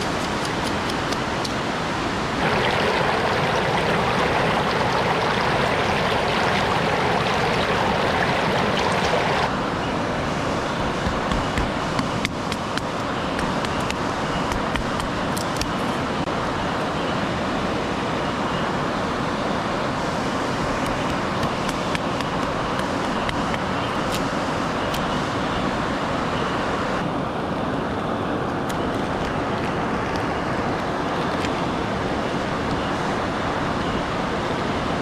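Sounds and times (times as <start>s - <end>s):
water drops ticking: 2.4s - 9.5s
waterfall rushing: 2.4s - 9.5s.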